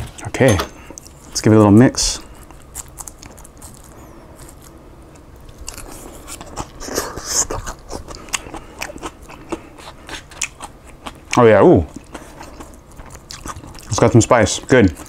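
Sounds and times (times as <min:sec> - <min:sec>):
crunchy chewing: 0:02.2 - 0:15.0.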